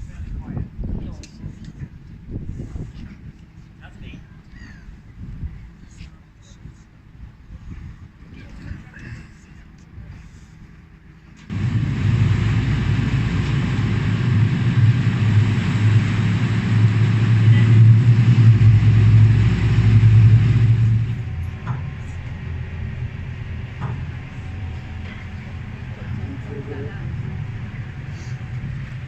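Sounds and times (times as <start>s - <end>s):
engine rumbling: 3.3s - 29.0s.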